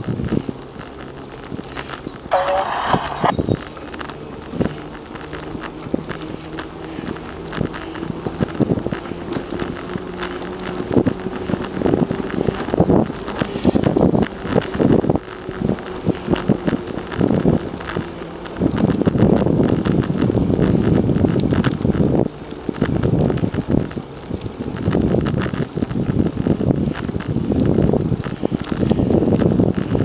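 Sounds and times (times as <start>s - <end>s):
bicycle rolling on pavement: 0.0s - 30.0s
wind buffeting microphone: 0.0s - 30.0s
steady low hum: 2.3s - 3.6s.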